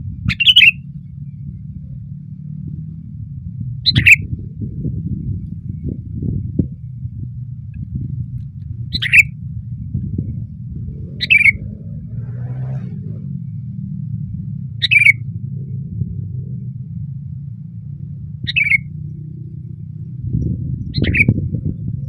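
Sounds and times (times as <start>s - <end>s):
steady low rumble: 0.0s - 22.0s
bird giving loud calls: 0.3s - 0.8s, 3.9s - 4.2s, 8.9s - 9.3s, 11.1s - 11.8s, 14.8s - 15.2s, 18.5s - 18.9s.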